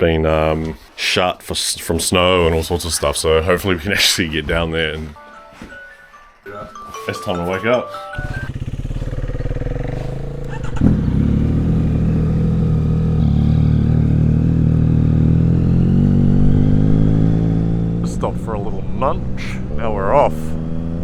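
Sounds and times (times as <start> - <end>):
motorcycle engine running: 8.2 - 18.4.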